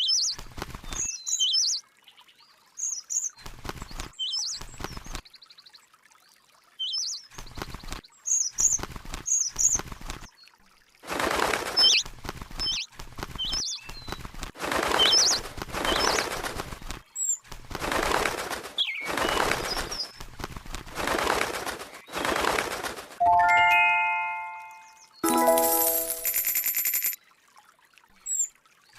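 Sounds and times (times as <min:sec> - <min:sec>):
bell-like chime: 0:23.2 - 0:27.2.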